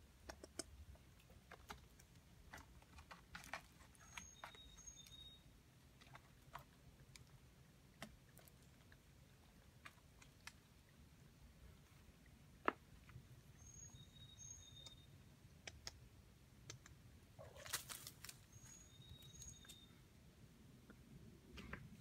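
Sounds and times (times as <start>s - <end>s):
faint high bird chirps: 4.0s - 5.5s, 13.5s - 15.2s, 18.4s - 20.1s.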